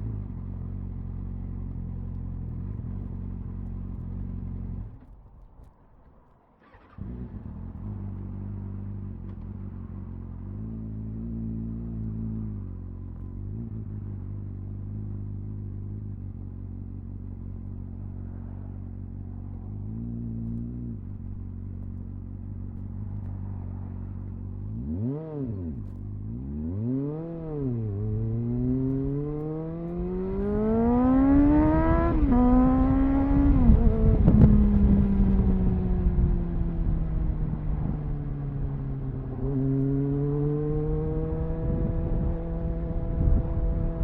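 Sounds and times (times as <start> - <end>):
motorcycle engine revving: 6.6 - 44.0
wind noise: 28.1 - 39.7, 40.6 - 44.0.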